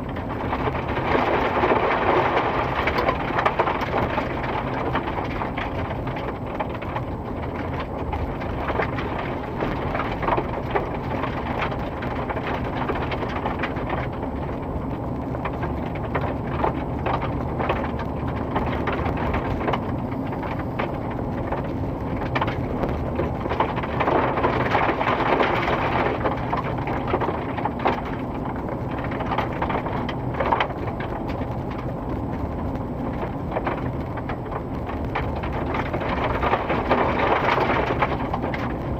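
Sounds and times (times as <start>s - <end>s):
crackling and scraping: 0.0s - 38.9s
machinery engine rumble: 0.0s - 38.9s.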